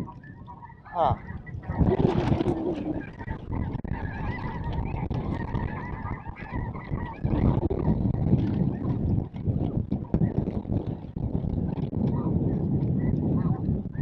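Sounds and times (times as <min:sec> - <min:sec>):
snow geese honking: 0:00.0 - 0:07.5.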